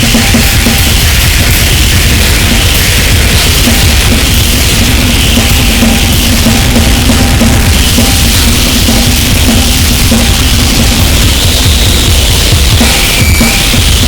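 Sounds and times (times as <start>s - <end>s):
distorted electronic noise: 0.0s - 14.0s
drum kit playing: 0.0s - 14.0s.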